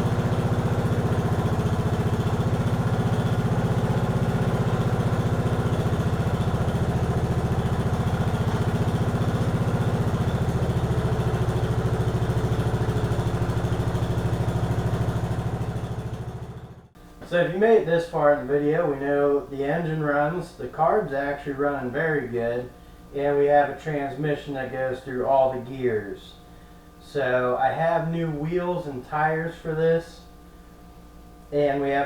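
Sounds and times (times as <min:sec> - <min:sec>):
garden tractor engine running: 0:00.0 - 0:16.9.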